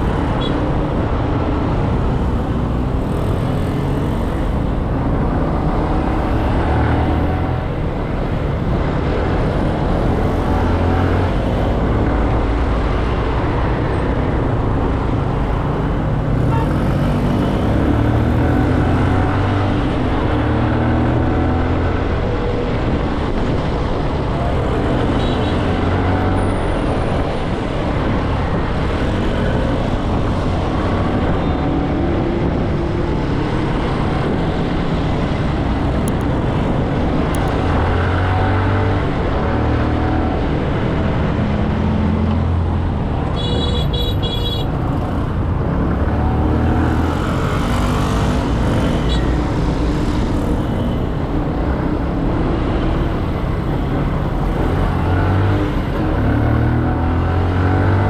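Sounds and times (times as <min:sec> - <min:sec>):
city traffic: 0:00.0 - 0:58.0
vehicle horn: 0:16.5 - 0:16.9, 0:43.4 - 0:44.7.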